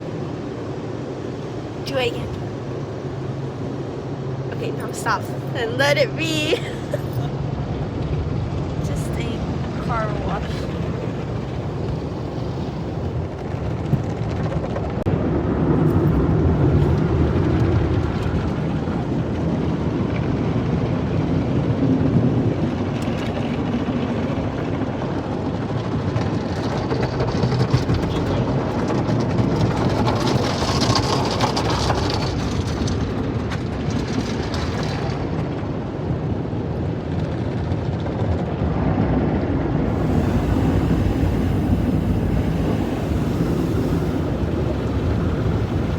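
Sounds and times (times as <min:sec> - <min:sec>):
car wash machinery rumble: 0:00.0 - 0:45.9
water spray hissing: 0:39.9 - 0:45.9.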